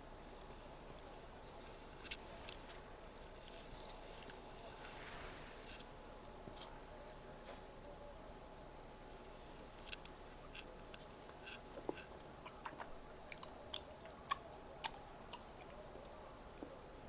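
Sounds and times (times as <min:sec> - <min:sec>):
soft rustling hiss: 0:00.0 - 0:17.0
eating clicks: 0:09.8 - 0:15.8.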